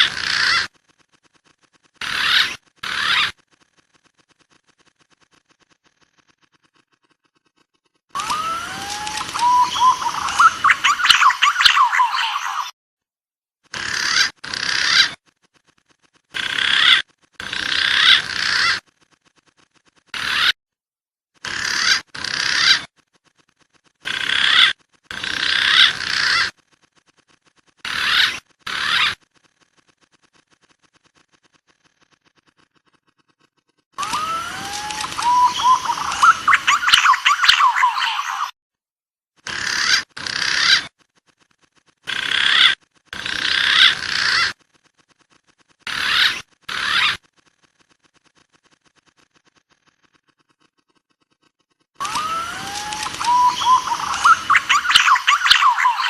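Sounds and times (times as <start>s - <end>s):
pigeon whistling calls: 8.2s - 12.7s, 34.0s - 38.5s, 52.0s - 56.0s.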